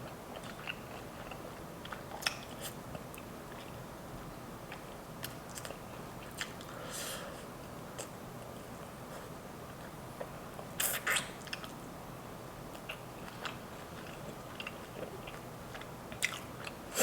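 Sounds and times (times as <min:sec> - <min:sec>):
chewing with wet mouth clicks: 0:00.3 - 0:03.8, 0:04.7 - 0:06.7, 0:09.7 - 0:11.8, 0:12.7 - 0:16.8.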